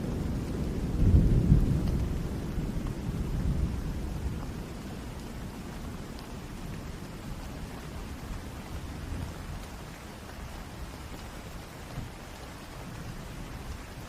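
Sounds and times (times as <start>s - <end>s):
low rumble of thunder: 0.0s - 14.0s
steady rain: 0.0s - 14.0s.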